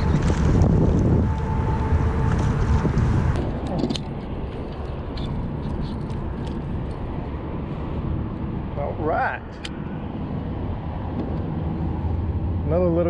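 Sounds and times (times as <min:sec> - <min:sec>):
wind buffeting microphone: 0:00.0 - 0:12.9
small clicks and scrapes: 0:03.4 - 0:07.1.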